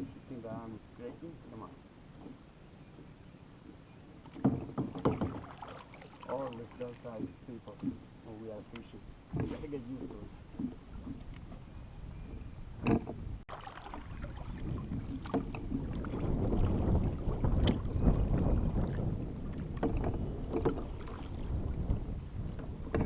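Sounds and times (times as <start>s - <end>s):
paddling in water: 0.0s - 23.0s
sharp knocks: 4.3s - 5.5s
wind rumble on microphone: 8.9s - 23.0s.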